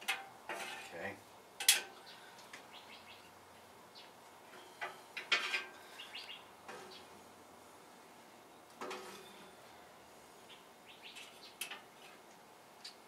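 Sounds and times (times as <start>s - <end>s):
birds chirping: 1.9s - 5.2s, 5.8s - 12.2s.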